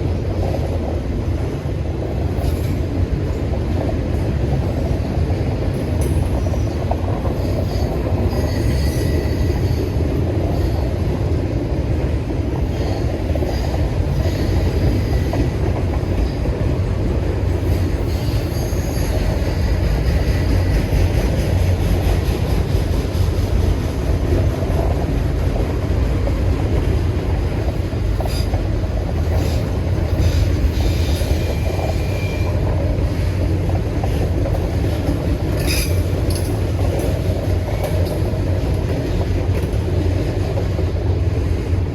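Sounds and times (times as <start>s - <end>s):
freight train rumbling: 0.0s - 41.9s.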